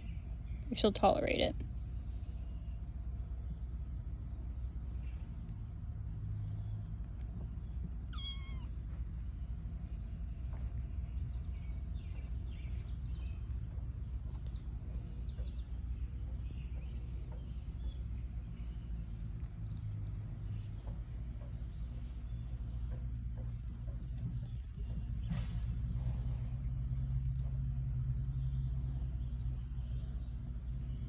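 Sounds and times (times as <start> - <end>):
steady low rumble: 0.0 - 31.0
kitten meowing: 8.0 - 8.9
faint short squeaks: 8.1 - 8.8.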